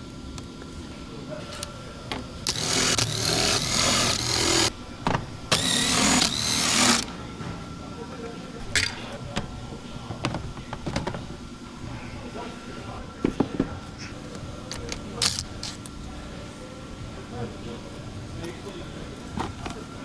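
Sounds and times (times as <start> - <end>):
power tool whining: 2.1 - 7.1, 15.2 - 15.8.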